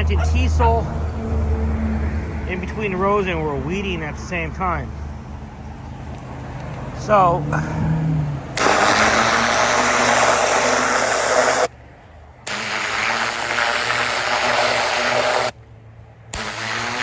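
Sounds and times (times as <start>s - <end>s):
engine hum: 0.0s - 17.0s
pressure washer blasting soil: 8.6s - 11.7s, 12.4s - 15.6s, 16.3s - 17.0s.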